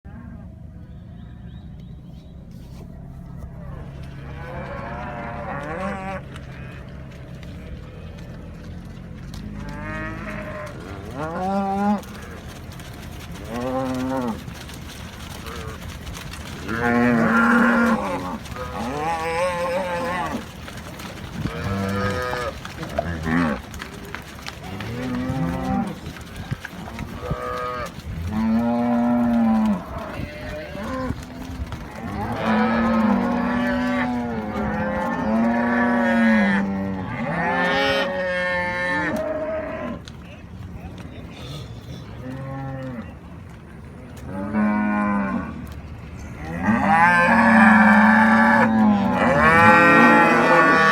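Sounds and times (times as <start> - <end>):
cattle mooing: 3.9 - 7.2, 9.4 - 40.1, 46.4 - 50.9.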